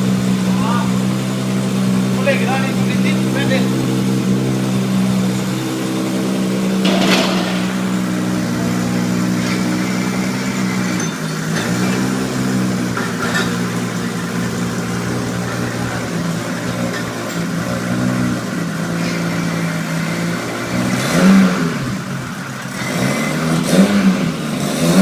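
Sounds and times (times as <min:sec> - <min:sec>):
car engine idling: 0:00.0 - 0:24.6
short rushing noise: 0:06.8 - 0:09.8.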